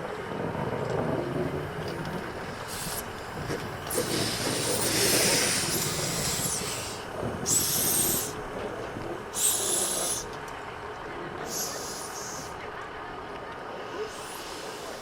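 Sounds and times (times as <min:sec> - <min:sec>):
steam locomotive hissing steam: 0:01.6 - 0:10.6, 0:11.4 - 0:12.7, 0:13.6 - 0:15.0.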